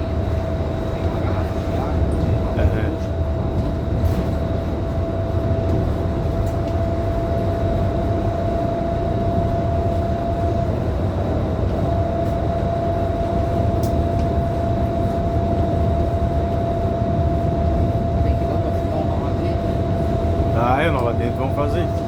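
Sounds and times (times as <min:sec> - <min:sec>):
bus diesel engine drone: 0:00.0 - 0:22.0
thin steady whine: 0:00.0 - 0:22.0.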